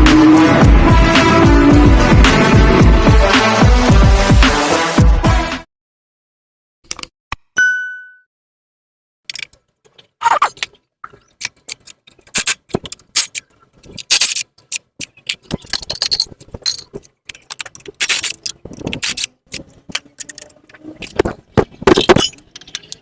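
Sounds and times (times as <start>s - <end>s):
metal tools clinking and scraping: 9.3s - 23.0s.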